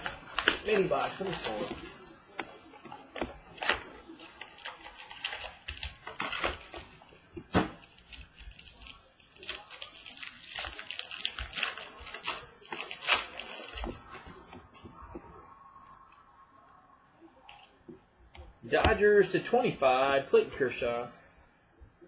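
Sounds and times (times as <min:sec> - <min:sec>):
packaging rustling and tearing: 0:00.0 - 0:14.5.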